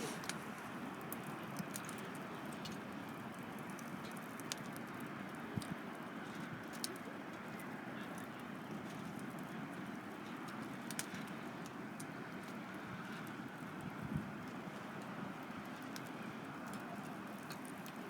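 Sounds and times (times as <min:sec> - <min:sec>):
fire hissing: 0:00.0 - 0:00.7
fire crackling and popping: 0:00.0 - 0:18.0.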